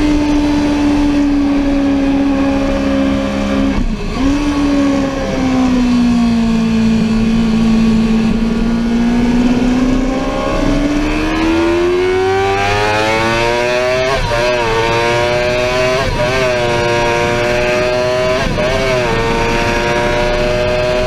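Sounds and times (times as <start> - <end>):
motorcycle engine at speed: 0.0 - 21.0.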